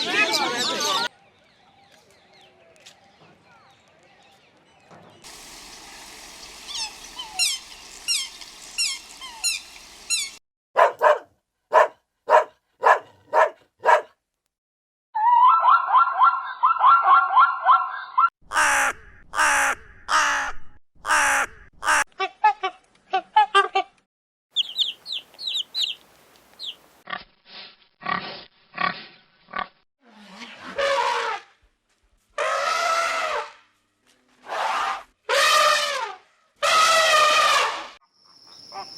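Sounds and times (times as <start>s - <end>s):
dog barking: 10.8s - 14.2s, 15.7s - 18.2s
small bird chirps: 24.6s - 26.0s, 26.6s - 26.8s
pig grunts: 28.0s - 29.7s.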